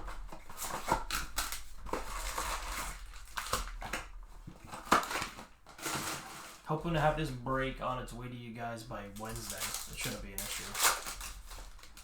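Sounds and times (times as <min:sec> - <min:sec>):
foil wrappers crinkling: 0:00.0 - 0:07.9, 0:08.8 - 0:12.0.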